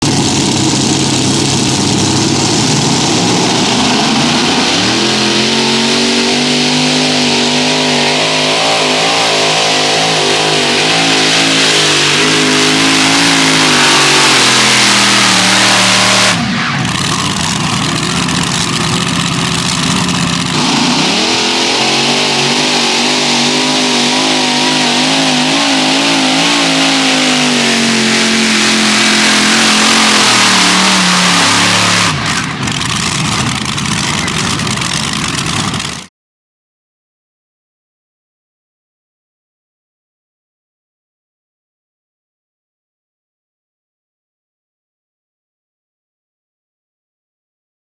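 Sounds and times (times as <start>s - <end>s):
pulling tractor engines under load: 5.8s - 21.0s, 23.3s - 36.1s.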